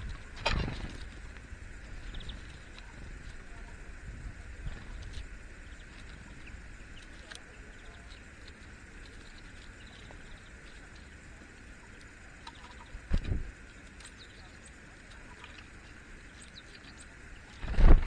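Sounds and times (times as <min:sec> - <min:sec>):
low rumble of wind: 0:00.0 - 0:13.7, 0:17.1 - 0:18.0
faint bird chirps: 0:02.0 - 0:03.8, 0:09.0 - 0:13.1, 0:14.0 - 0:15.6, 0:16.2 - 0:17.7.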